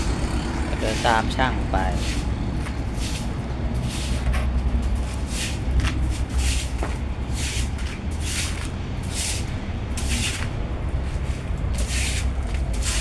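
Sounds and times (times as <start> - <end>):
steady low hum: 0.0 - 13.0
footsteps scuffing on ground: 0.8 - 13.0.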